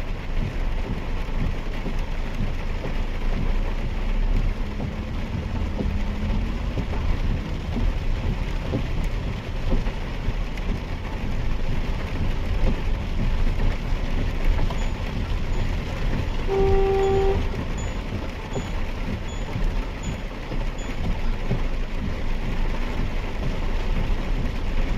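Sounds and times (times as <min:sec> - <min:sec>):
car driving through rain: 0:00.0 - 0:24.9
car horn toot: 0:16.4 - 0:18.0.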